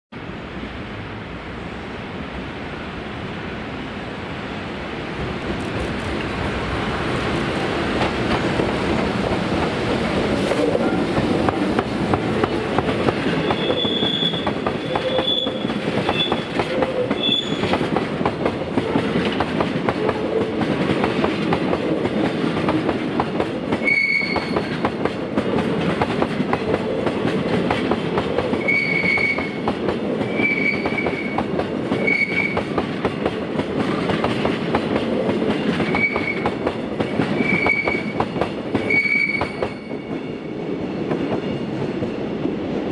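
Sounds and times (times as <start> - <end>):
freight train rolling past: 0.2 - 42.9
high wheel squeals: 13.4 - 16.5, 17.2 - 17.7, 30.3 - 31.4, 35.9 - 36.5.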